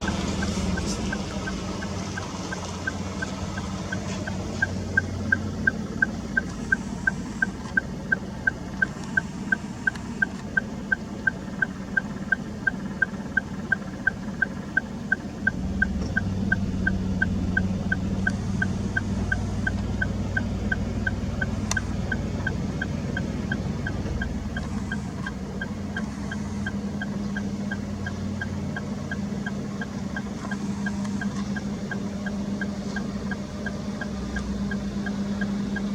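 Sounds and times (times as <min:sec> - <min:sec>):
car engine idling: 0:00.0 - 0:35.9
car turn indicator ticking: 0:00.0 - 0:35.9.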